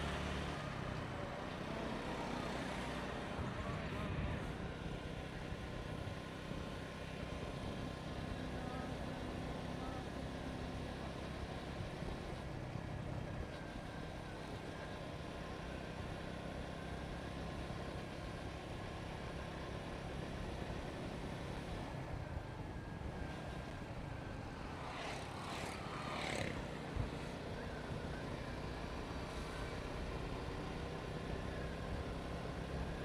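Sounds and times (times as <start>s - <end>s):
road noise: 0.0s - 33.0s
motorcycle engine running: 24.6s - 30.8s.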